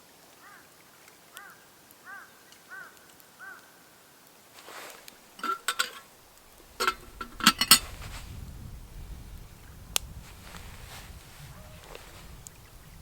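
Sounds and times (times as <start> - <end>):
metal cookware clinking: 5.4 - 8.0.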